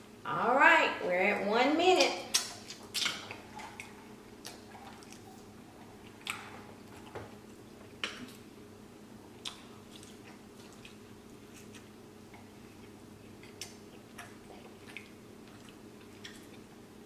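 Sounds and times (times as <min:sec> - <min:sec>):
steady low hum: 0:00.0 - 0:17.0
sharp crunches and mouth clicks: 0:02.3 - 0:07.2, 0:09.4 - 0:16.7
man chewing: 0:02.3 - 0:08.5, 0:09.3 - 0:17.0.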